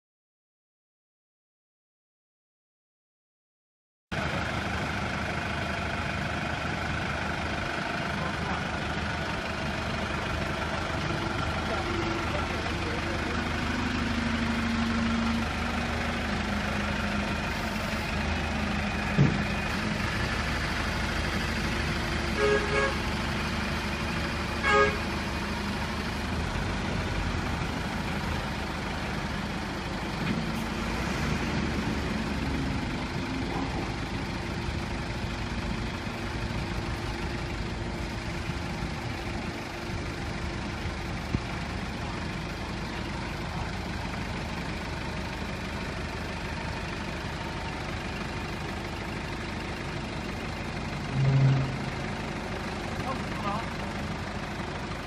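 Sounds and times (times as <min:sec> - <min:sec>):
truck engine running: 0:04.1 - 0:55.0
short pitched beeps: 0:51.1 - 0:52.1.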